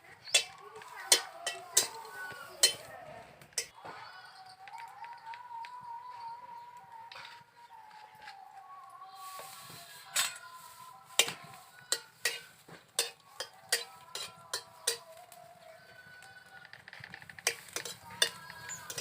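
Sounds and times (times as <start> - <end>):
frying hiss: 0.0 - 3.7, 9.0 - 16.2, 17.3 - 19.0.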